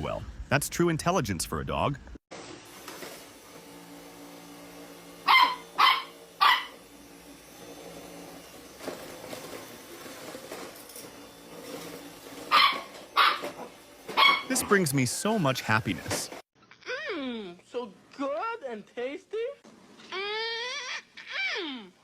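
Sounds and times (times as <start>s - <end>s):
dog barking: 5.2s - 6.8s, 12.5s - 13.5s, 14.2s - 14.5s.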